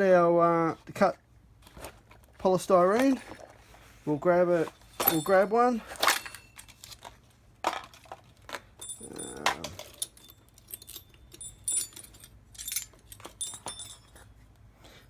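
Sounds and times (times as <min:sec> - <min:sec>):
metal hole saws clinking: 0:04.6 - 0:06.8, 0:08.8 - 0:14.2.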